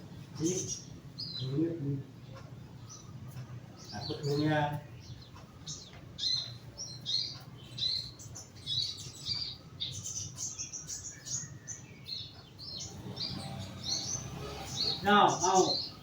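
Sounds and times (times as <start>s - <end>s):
young jay chirping: 5.0s - 16.0s
steady low hum: 12.9s - 16.0s.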